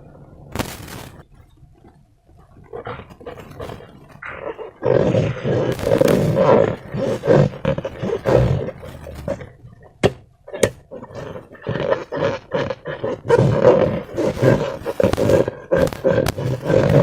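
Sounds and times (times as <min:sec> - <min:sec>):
sharp clicks: 0:14.8 - 0:17.0.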